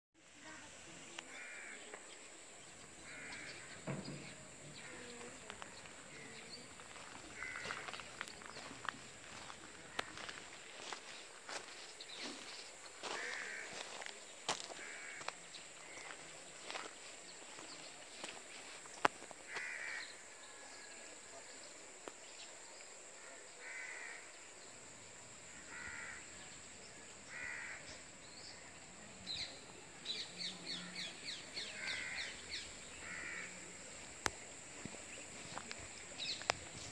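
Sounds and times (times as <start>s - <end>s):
birds calling: 1.2s - 18.4s, 27.3s - 33.6s.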